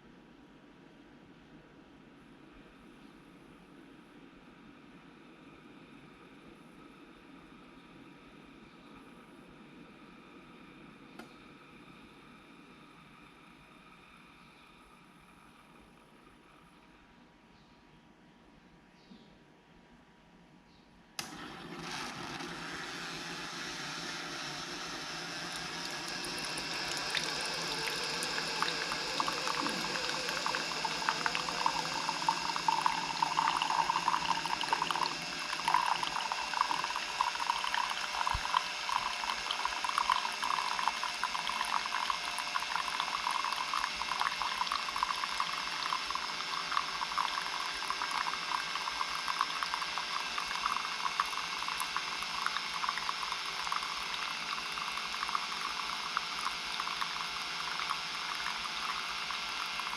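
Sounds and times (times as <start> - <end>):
coffee maker bubbling: 21.2 - 59.9
coffee trickling into mug: 21.2 - 59.9.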